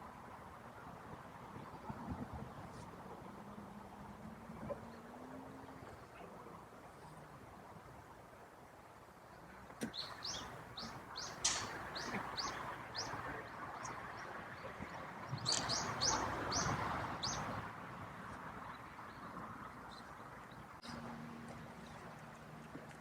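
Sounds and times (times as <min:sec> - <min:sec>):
bird chirping: 0:09.8 - 0:17.6
sharp click: 0:11.4 - 0:12.6, 0:15.5 - 0:15.8.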